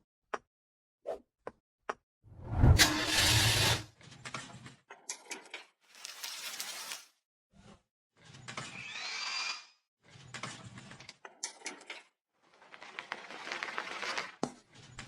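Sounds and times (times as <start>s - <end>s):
workshop tool noise: 2.6s - 3.8s.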